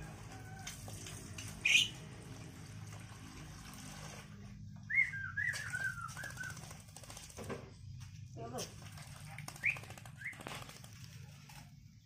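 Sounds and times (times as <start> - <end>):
bird splashing and flapping wings: 0.0 - 11.8
bird chirping: 1.6 - 2.0.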